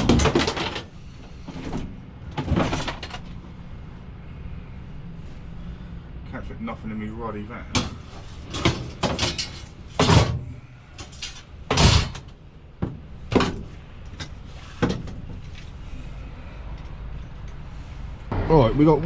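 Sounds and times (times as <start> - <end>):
van doors shutting: 0.0 - 3.4, 7.7 - 15.9
scrap knocking and banging: 7.8 - 15.6.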